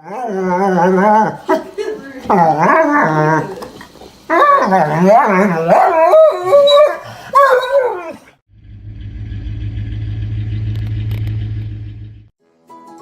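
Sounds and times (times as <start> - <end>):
dog howling: 4.3 - 8.3
steady low rumble: 8.5 - 12.3.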